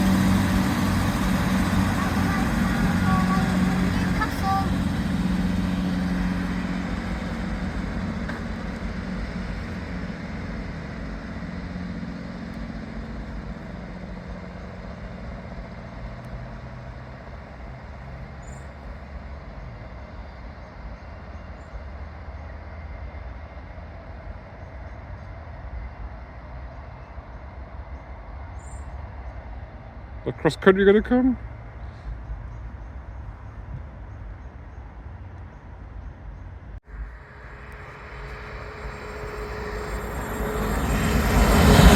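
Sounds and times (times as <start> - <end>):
rail rumble: 0.0 - 41.9
train engine hum: 0.0 - 41.9.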